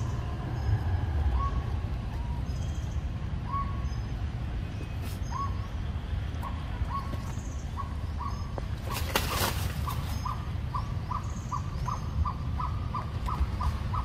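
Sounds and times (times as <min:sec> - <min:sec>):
steady low rumble: 0:00.0 - 0:14.0
bird whistling calls: 0:01.4 - 0:04.1, 0:04.8 - 0:05.7, 0:06.4 - 0:09.2.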